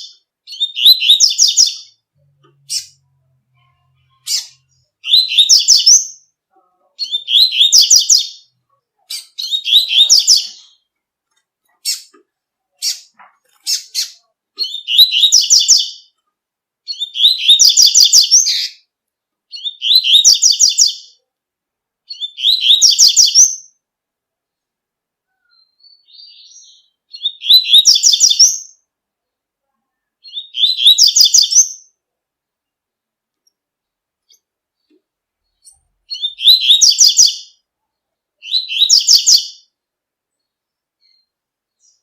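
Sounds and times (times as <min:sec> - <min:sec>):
bird singing quick repeated notes: 0:30.2 - 0:31.8, 0:35.5 - 0:37.6.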